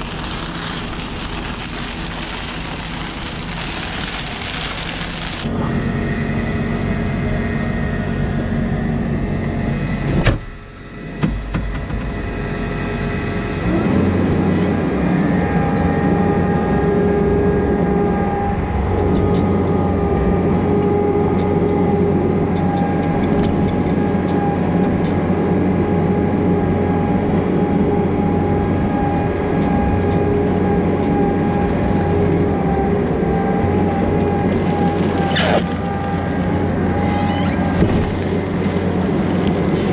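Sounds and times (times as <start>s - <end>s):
diesel skid loader running: 0.0s - 39.9s
steady machine whine: 0.0s - 39.9s.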